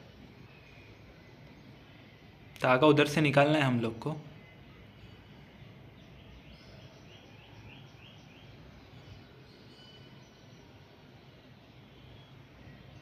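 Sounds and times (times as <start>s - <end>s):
small bird chirping: 4.2s - 10.9s.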